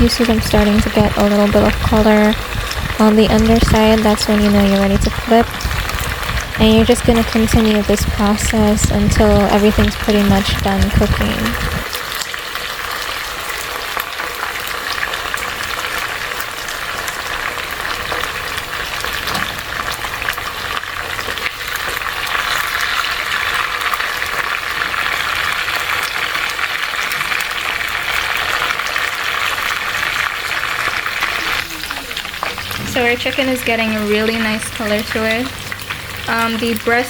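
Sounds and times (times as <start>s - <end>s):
chicken sizzling in hot oil: 0.0s - 37.0s.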